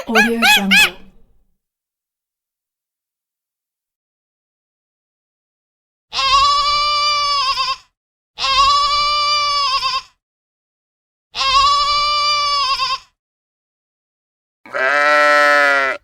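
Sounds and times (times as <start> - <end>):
goat bleating: 0.0 - 1.2, 6.2 - 7.8, 8.4 - 10.1, 11.4 - 13.1, 14.7 - 16.0.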